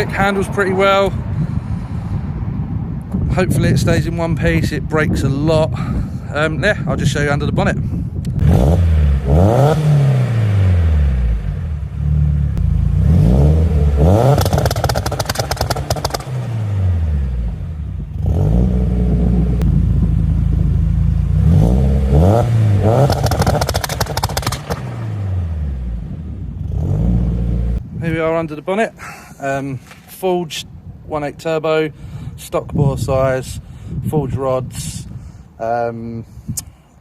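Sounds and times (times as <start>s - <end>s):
turbo car engine revving: 8.3s - 27.8s.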